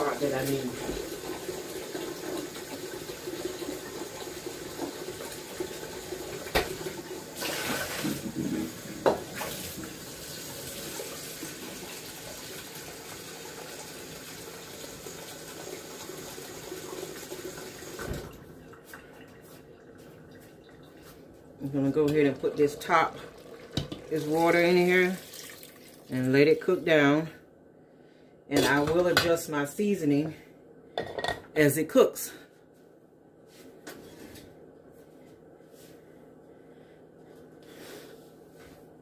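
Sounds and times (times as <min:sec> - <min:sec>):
tap water running into container: 0:00.0 - 0:21.2, 0:21.8 - 0:26.2.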